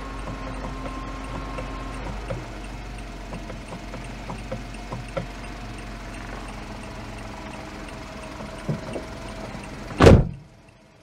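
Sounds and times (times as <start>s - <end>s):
car engine idling: 0.0s - 11.0s
loud thump: 10.0s - 10.4s.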